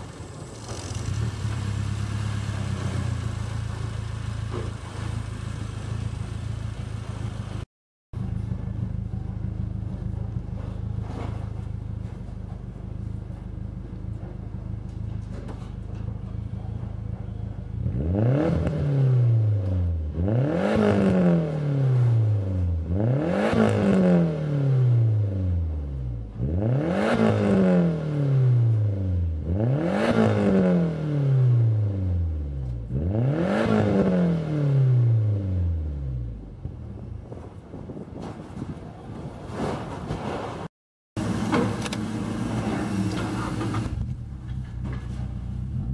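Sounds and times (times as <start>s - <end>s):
car engine revving: 0.0s - 7.7s, 17.7s - 37.0s, 41.2s - 45.9s.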